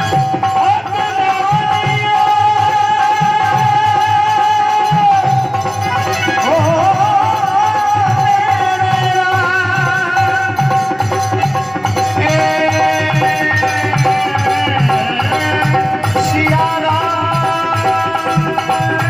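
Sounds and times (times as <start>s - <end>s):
hand drum rhythm: 0.0s - 19.0s.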